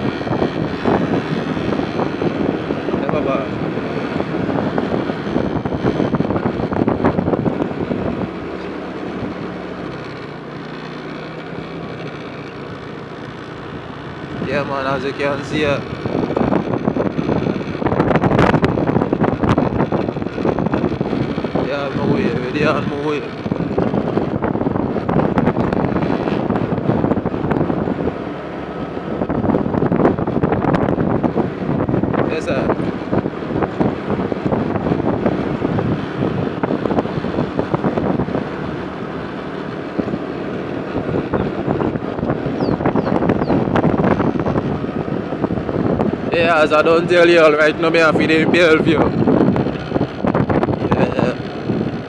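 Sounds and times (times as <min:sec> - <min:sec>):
vehicle engine and road noise: 0:00.0 - 0:52.0
wind buffeting microphone: 0:00.0 - 0:52.0.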